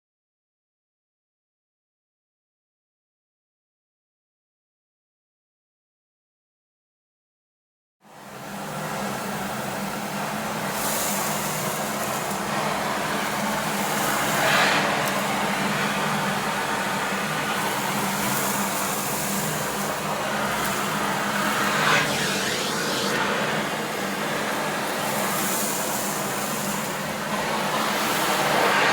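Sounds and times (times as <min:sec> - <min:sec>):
vacuum cleaner running: 0:10.8 - 0:28.9.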